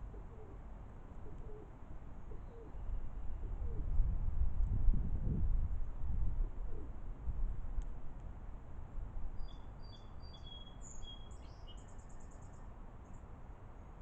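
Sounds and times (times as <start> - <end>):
songbird whistling: 9.4 - 12.4.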